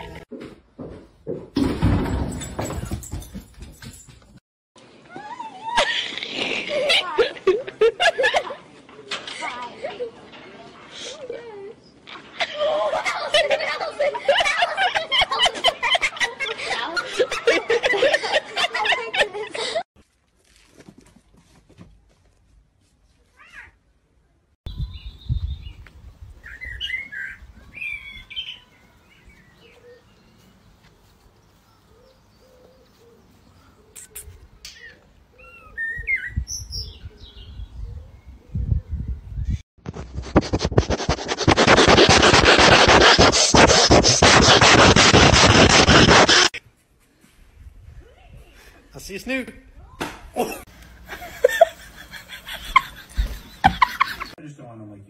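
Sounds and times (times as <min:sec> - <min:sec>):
people laughing: 0:05.8 - 0:08.7, 0:12.4 - 0:19.8, 0:50.4 - 0:54.4
rapid scratching at microphone: 0:39.8 - 0:46.6, 0:53.5 - 0:54.4.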